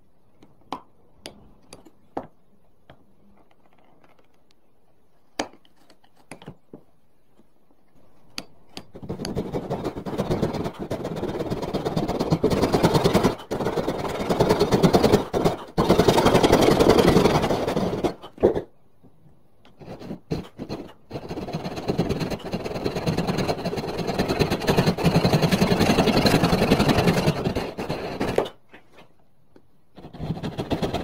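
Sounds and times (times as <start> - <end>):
rasping scrape on wood: 8.9 - 18.7, 19.7 - 28.6, 30.0 - 31.0.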